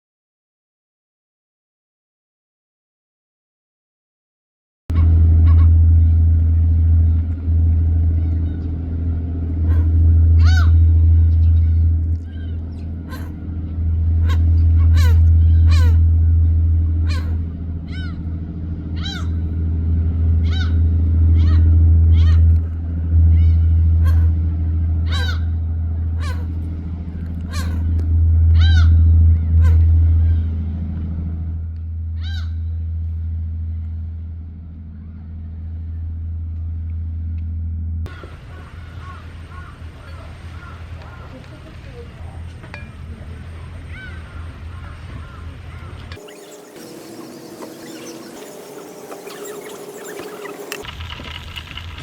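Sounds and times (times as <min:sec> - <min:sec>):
loud steady low rumble: 0:04.9 - 0:51.0
low engine hum: 0:04.9 - 0:52.0
bird calling: 0:09.6 - 0:18.2, 0:27.4 - 0:28.0, 0:43.9 - 0:50.9
animal call: 0:11.6 - 0:13.4, 0:14.2 - 0:16.1, 0:27.5 - 0:28.0.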